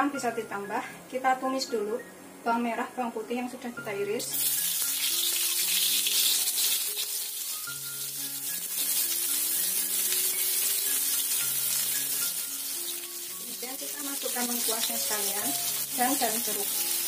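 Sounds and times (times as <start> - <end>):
soft background music: 0.0 - 17.0
food sizzling in hot oil: 4.2 - 17.0.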